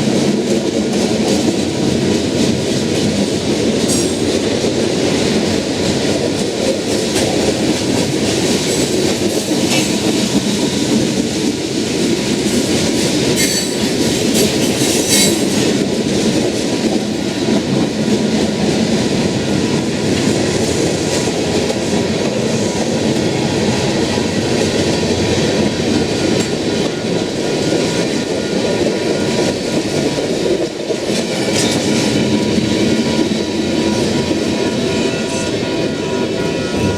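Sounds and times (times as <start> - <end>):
freight train rumbling past: 0.0 - 36.9.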